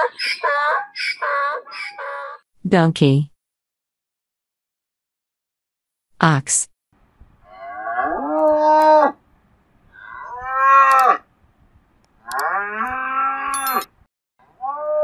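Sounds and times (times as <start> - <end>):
ox mooing: 7.5 - 9.2, 10.0 - 11.3, 12.2 - 13.9.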